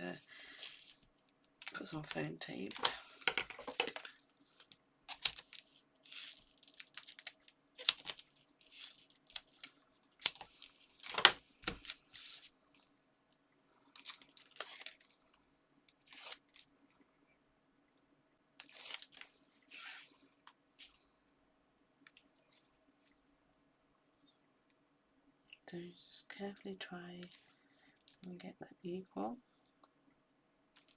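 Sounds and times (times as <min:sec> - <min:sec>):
faint steady hum: 0:00.0 - 0:30.9
foam tape ripping and crackling: 0:05.1 - 0:12.5, 0:14.0 - 0:15.1, 0:15.9 - 0:16.6, 0:18.6 - 0:20.0.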